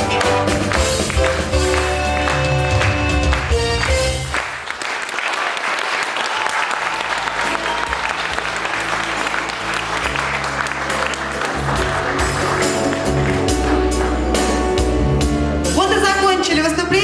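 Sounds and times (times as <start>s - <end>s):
audience applauding: 0.0s - 14.9s
music with low bass notes: 8.4s - 17.0s.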